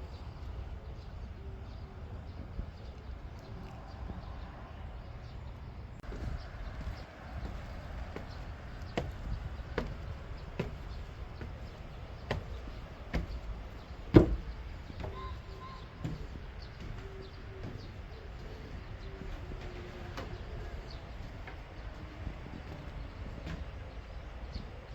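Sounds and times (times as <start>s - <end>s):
footsteps walking: 6.0s - 24.1s.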